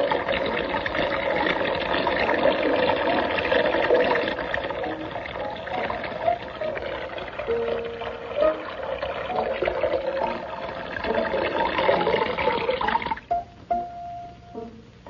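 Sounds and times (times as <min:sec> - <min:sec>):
cartoon music score: 0:04.8 - 0:10.4
plucked string notes: 0:13.3 - 0:14.9.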